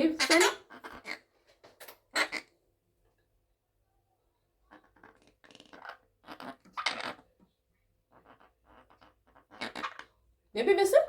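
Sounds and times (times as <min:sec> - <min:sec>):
parrot raspy chatters: 0:00.0 - 0:01.3, 0:02.1 - 0:02.5, 0:04.7 - 0:07.3, 0:08.0 - 0:10.2.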